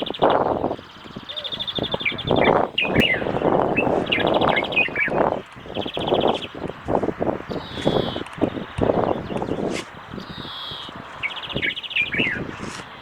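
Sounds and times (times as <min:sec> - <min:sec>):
small birds chirping: 0:00.0 - 0:13.0
rustling and scraping noise: 0:05.3 - 0:10.2, 0:12.4 - 0:13.0.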